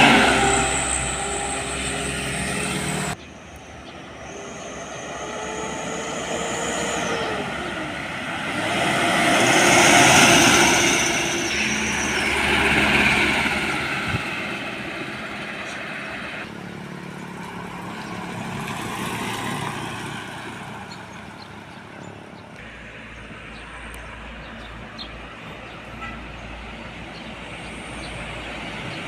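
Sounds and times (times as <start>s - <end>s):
whine dropping in pitch: 0.0s - 14.6s
trucks passing by: 0.0s - 29.0s.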